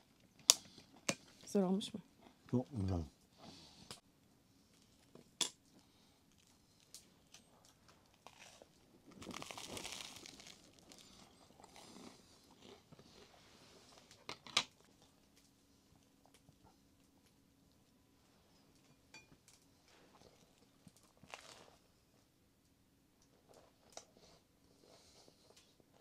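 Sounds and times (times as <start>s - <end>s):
crinkling rustle: 6.4s - 14.2s, 19.9s - 21.8s.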